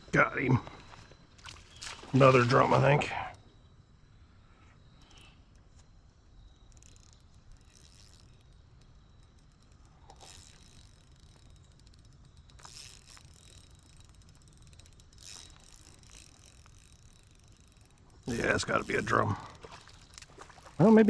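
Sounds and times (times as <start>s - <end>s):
fishing reel clicking and whirring: 4.9s - 21.0s.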